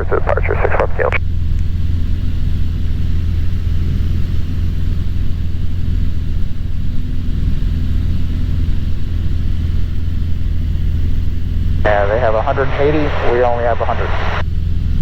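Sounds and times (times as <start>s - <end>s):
airplane engine droning in cabin: 0.0s - 15.0s.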